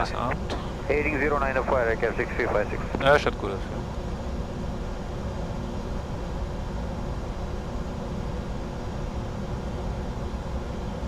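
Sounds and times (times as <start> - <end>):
low rumble: 0.0 - 3.8
faint steady hum: 0.0 - 11.0
jet cockpit airflow and engine noise: 0.0 - 11.0.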